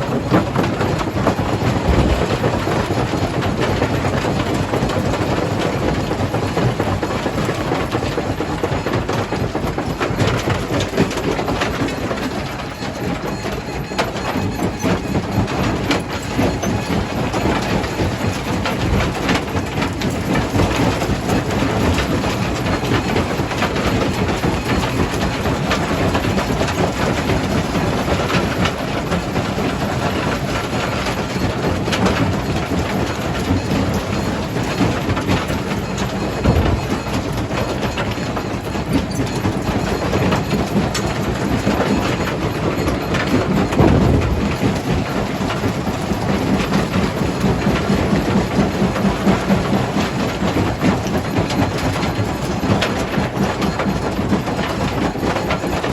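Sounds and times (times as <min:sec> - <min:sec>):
low running hum: 0:01.1 - 0:03.6, 0:34.1 - 0:38.7, 0:43.3 - 0:47.3.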